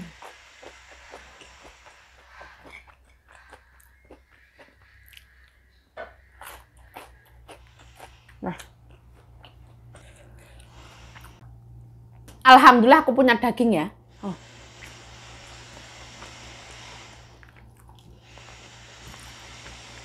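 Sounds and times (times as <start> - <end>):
person chewing crisp food: 0.0 - 11.5, 17.4 - 19.8.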